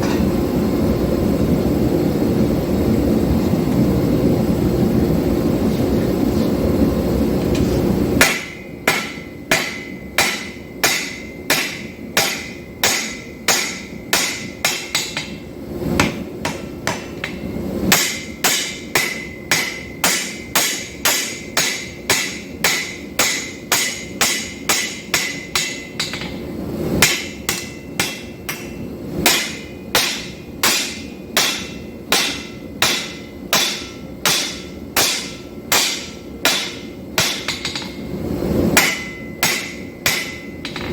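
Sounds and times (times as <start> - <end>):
hammer striking steel on anvil: 8.2 - 38.1, 38.8 - 40.9.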